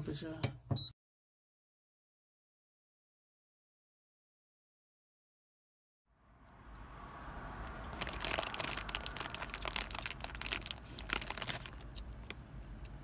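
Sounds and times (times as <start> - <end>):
crinkling and crackling handling: 7.6 - 13.0.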